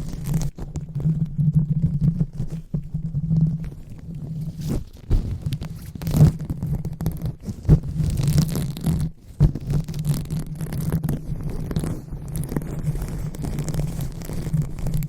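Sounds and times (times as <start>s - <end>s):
hands rubbing a microphone: 0.0s - 15.0s
sharp bumps on microphone: 4.3s - 12.0s.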